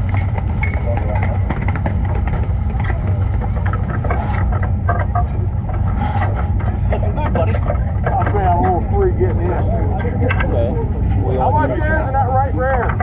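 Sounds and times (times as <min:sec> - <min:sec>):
clicks and knocks: 0:00.0 - 0:08.8
vehicle engine rumbling: 0:00.0 - 0:13.0.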